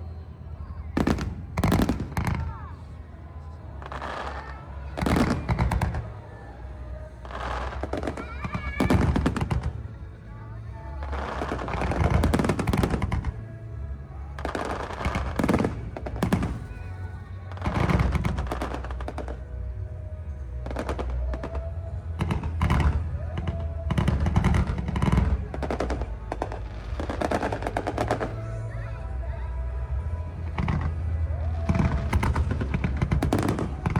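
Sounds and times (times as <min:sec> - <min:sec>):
background music: 0:00.0 - 0:33.9
fireworks bursting: 0:00.9 - 0:02.9, 0:03.6 - 0:06.2, 0:07.2 - 0:09.9, 0:10.9 - 0:13.5, 0:14.2 - 0:19.5, 0:20.6 - 0:28.6, 0:30.3 - 0:33.9.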